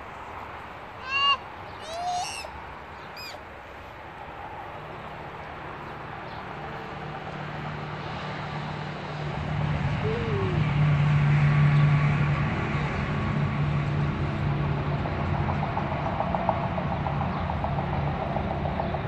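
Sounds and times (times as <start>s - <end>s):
low engine hum: 0.0s - 19.0s
outdoor background noise: 0.0s - 19.0s
short clear bird calls: 1.0s - 3.4s.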